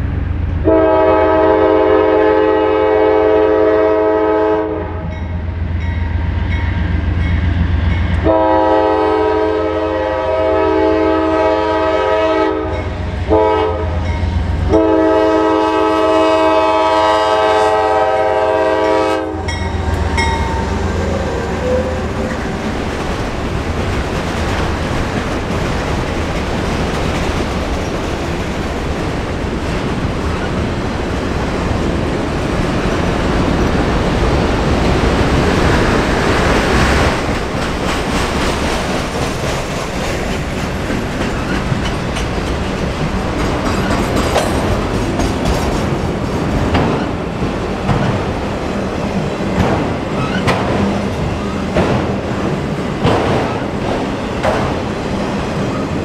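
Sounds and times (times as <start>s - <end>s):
freight train rumbling past: 0.0s - 56.0s
train wheels clicking over rail joints: 19.4s - 56.0s.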